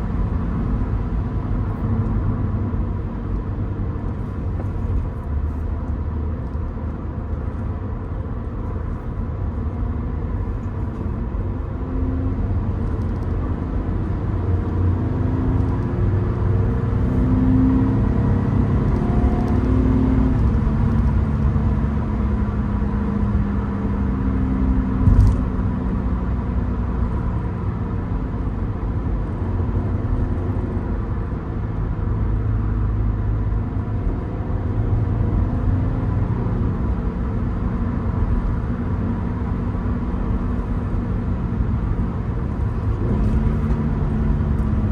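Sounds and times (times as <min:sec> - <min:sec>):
road rumble: 0:00.0 - 0:44.9
car engine running: 0:01.6 - 0:11.9, 0:25.0 - 0:26.0, 0:38.2 - 0:44.9
sharp thump: 0:25.0 - 0:25.6.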